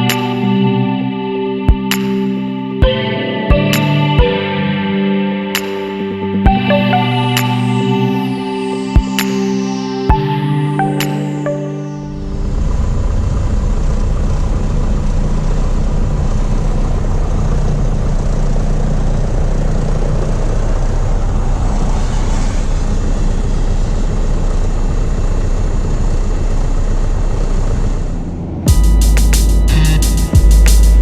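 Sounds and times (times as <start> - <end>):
propeller plane engine droning: 12.0 - 31.0.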